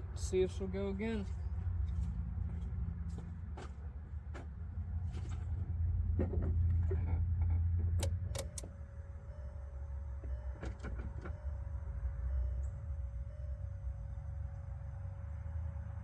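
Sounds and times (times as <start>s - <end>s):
starter cranking diesel engine: 7.9s - 8.7s
sharp clicks: 8.0s - 8.7s.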